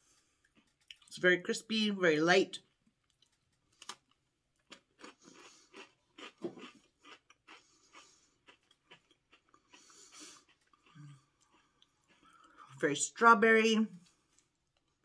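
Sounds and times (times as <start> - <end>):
person chewing crispy wafer: 0.0 - 1.1, 2.8 - 12.8.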